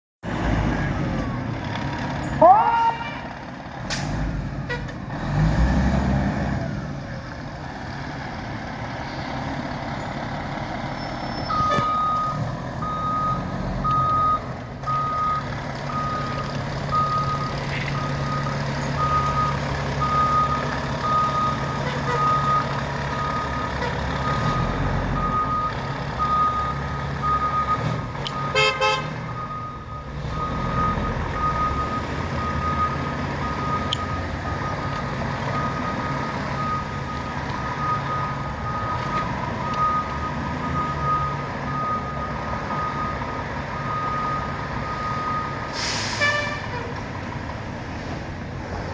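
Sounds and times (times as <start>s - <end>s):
fire truck engine running: 6.7s - 24.4s
reversing alarm beeping: 10.9s - 24.6s, 25.2s - 46.2s.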